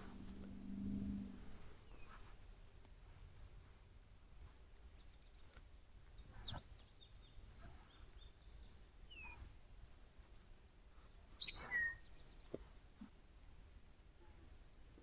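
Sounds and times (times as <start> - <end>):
low forest ambience rumble: 0.0 - 15.0
faint bird chirps: 0.6 - 2.3, 4.8 - 9.5, 10.7 - 12.6.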